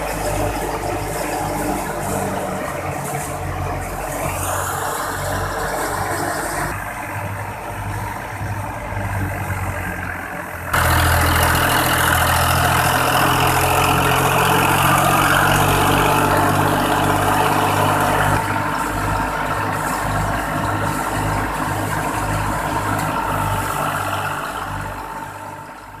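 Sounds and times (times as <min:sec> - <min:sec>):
thresher mechanical rush: 0:00.0 - 0:25.7
tractor engine running under load: 0:00.0 - 0:26.0.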